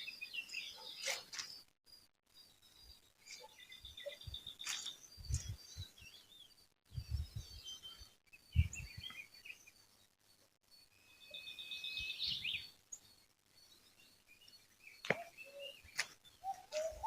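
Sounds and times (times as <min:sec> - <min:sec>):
small birds chirping: 0:00.0 - 0:17.0
bird trill: 0:02.8 - 0:09.9, 0:11.0 - 0:17.0.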